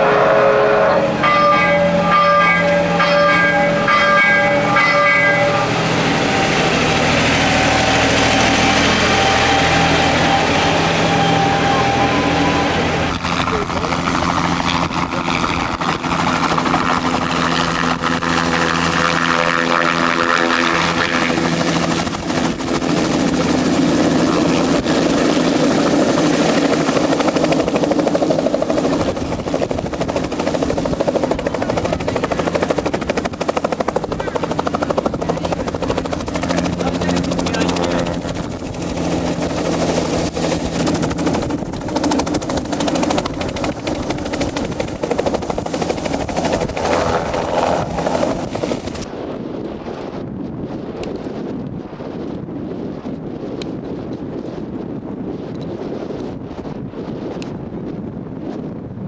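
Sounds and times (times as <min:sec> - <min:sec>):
helicopter running close by: 0:00.0 - 0:59.0.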